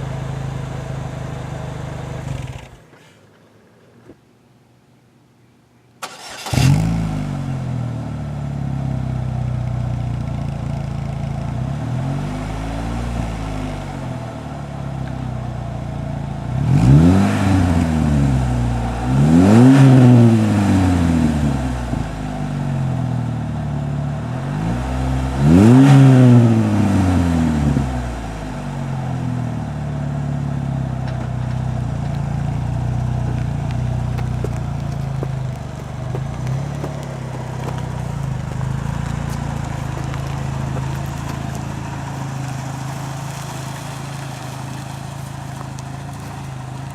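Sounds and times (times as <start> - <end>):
car engine idling: 0.0 - 3.9, 6.0 - 46.9
car engine starting: 0.0 - 3.9, 6.0 - 46.9
engine throttle revs: 6.0 - 8.2, 16.4 - 29.6.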